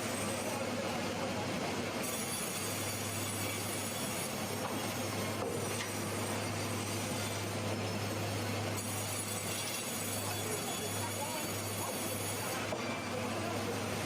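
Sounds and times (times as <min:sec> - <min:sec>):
sawmill machinery running: 0:00.0 - 0:14.0.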